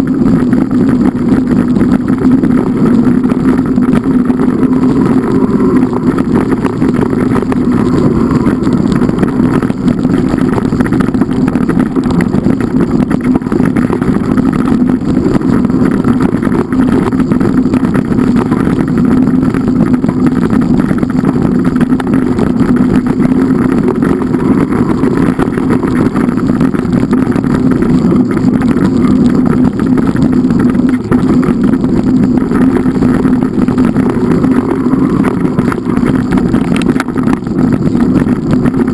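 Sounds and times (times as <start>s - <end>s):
engine running loudly: 0.0s - 38.9s.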